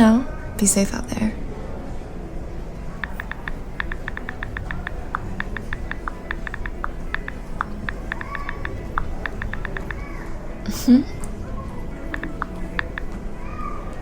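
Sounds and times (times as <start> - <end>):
rapid light clicks: 3.0 - 10.1, 12.1 - 13.2.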